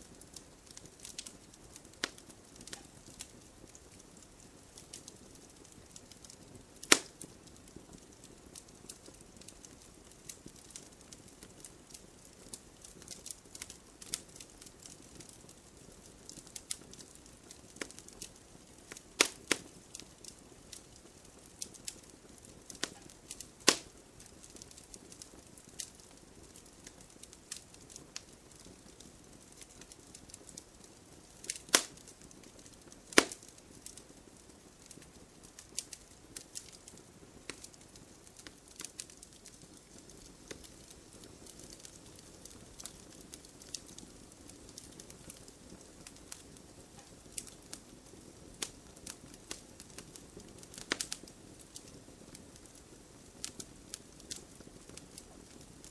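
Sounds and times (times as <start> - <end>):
low steady hiss: 0.0 - 55.9
wood fire crackling: 0.0 - 55.9
loud sharp pops: 6.9 - 7.1, 23.6 - 23.9, 31.7 - 32.0, 33.1 - 33.4.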